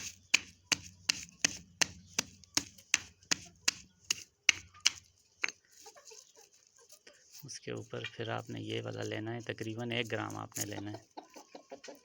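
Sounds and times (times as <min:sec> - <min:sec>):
knife chopping garlic: 0:00.0 - 0:05.6.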